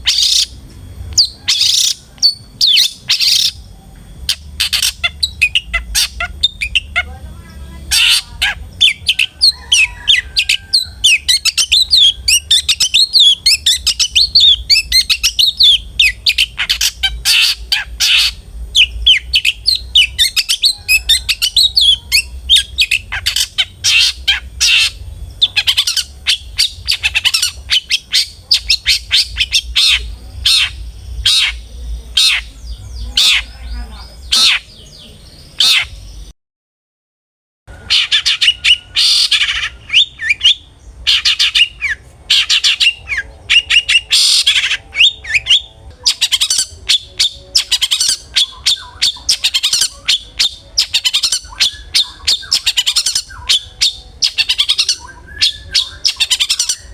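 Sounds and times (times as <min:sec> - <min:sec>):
bird squawking and chattering: 0:00.0 - 0:00.6, 0:01.2 - 0:36.2, 0:37.7 - 0:56.9
low hum: 0:00.0 - 0:36.3.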